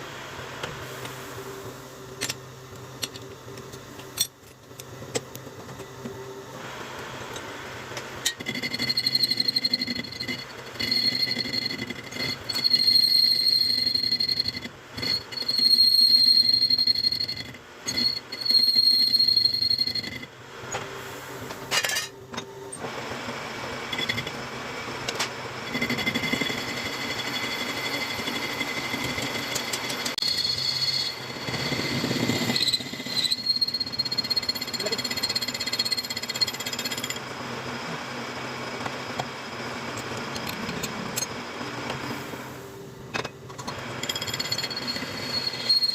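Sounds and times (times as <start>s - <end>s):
metal lathe cutting metal: 8.2s - 20.2s, 25.4s - 41.8s, 43.7s - 45.9s.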